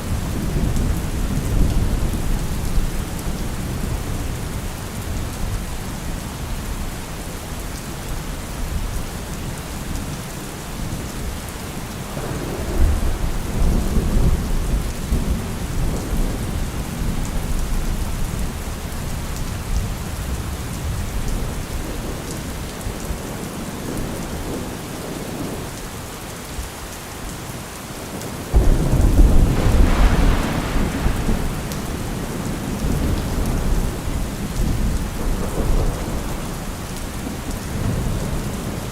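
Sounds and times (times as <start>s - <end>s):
heavy rain: 0.0s - 38.9s
rolling thunder: 12.1s - 22.1s, 28.5s - 38.8s.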